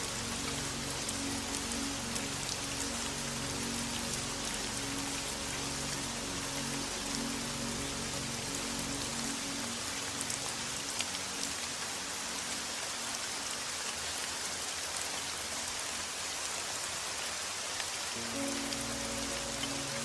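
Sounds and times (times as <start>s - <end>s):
low sustained music tones: 0.0s - 20.0s
steady rain: 0.0s - 20.0s.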